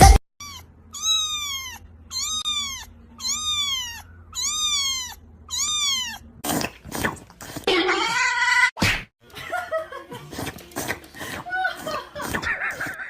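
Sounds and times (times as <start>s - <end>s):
cat meowing: 0.4s - 6.4s.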